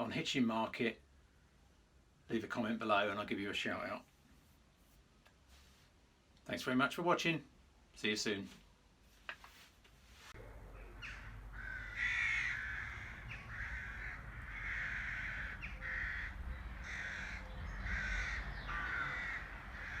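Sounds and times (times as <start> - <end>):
low steady rumble: 10.4 - 19.9
bird calling: 10.4 - 20.0.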